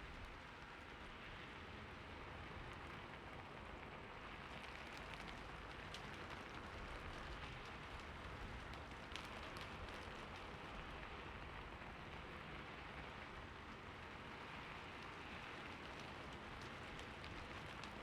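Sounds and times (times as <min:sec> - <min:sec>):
soft steady rain: 0:00.0 - 0:18.0.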